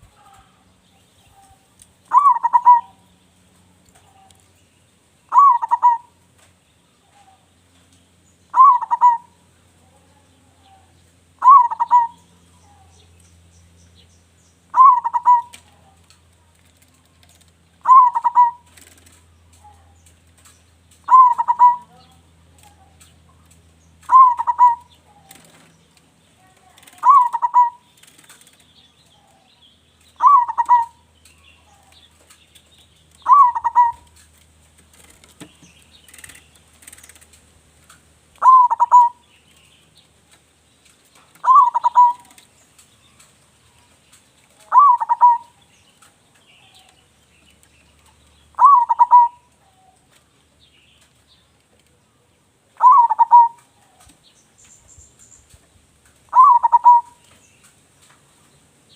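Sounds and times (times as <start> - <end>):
dove cooing: 1.3 - 3.0, 5.3 - 6.2, 8.5 - 12.9, 14.7 - 15.9, 17.8 - 19.1, 21.0 - 22.9, 24.0 - 25.7, 26.8 - 28.3, 30.2 - 31.0, 33.2 - 34.2, 38.4 - 39.2, 41.4 - 42.5, 44.6 - 45.6, 48.5 - 50.1, 52.8 - 54.1, 56.3 - 57.3.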